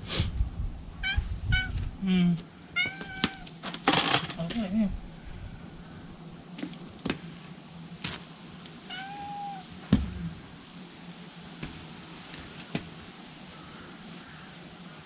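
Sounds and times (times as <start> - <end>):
cat meowing: 1.0 - 1.8, 2.7 - 3.6, 8.9 - 9.7.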